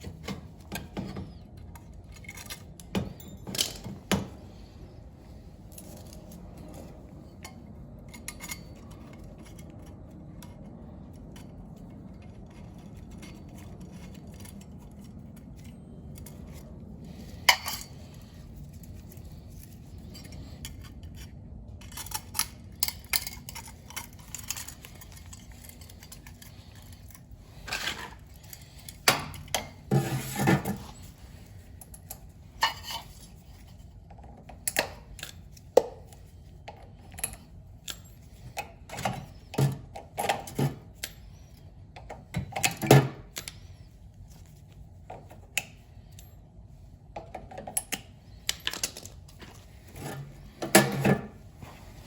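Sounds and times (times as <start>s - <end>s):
metal parts clinking and rattling: 0.0s - 33.8s, 47.5s - 51.4s.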